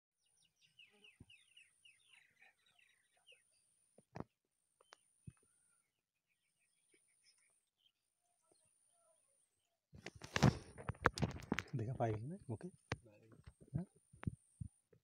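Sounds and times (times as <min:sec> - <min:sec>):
faint birdsong chirps: 0:00.2 - 0:10.5.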